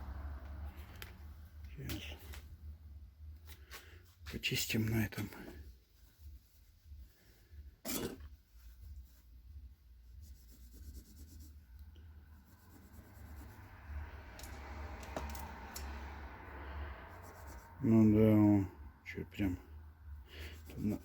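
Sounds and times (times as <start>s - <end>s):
scratchy rubbing on sandpaper: 7.9s - 14.1s, 17.1s - 17.8s, 20.3s - 21.0s.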